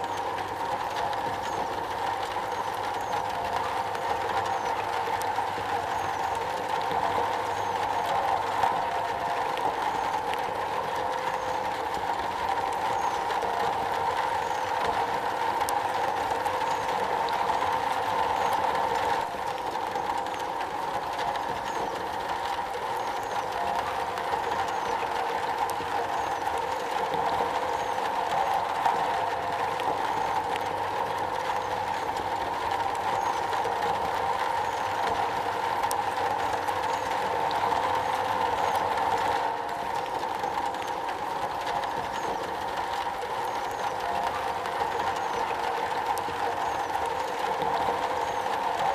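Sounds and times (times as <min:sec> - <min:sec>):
rain on a metal roof: 0:00.0 - 0:48.9.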